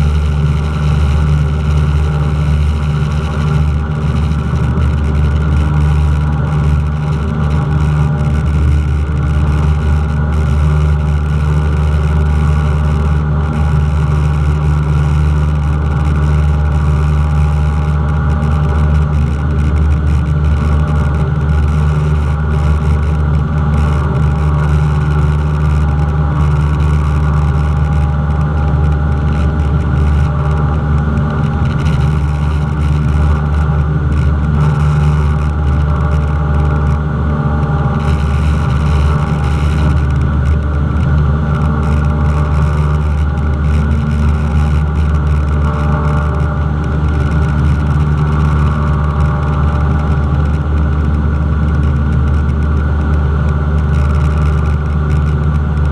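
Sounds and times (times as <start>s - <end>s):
propeller plane engine drone: 0.0s - 55.9s.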